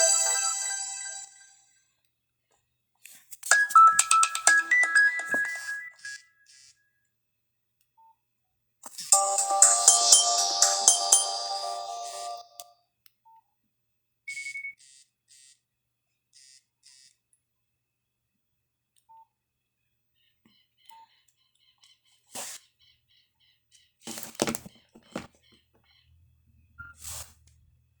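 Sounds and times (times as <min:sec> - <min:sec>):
phone ringtone: 0:00.0 - 0:01.6, 0:03.5 - 0:06.2, 0:09.1 - 0:12.6.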